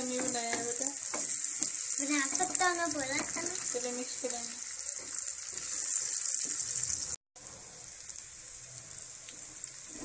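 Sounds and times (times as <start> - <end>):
spatula stirring: 0.0 - 3.9
eggs sizzling in frying pan: 0.0 - 10.0.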